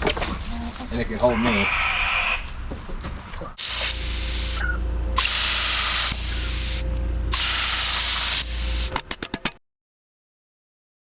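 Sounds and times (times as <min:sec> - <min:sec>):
steady low hum: 0:02.5 - 0:09.1
hissing spray: 0:03.6 - 0:04.6, 0:05.2 - 0:08.9.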